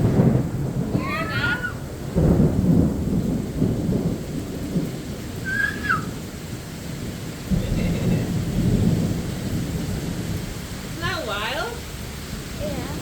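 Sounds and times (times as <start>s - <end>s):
steady rain: 0.0s - 13.0s
thunder rumbling: 0.0s - 13.0s.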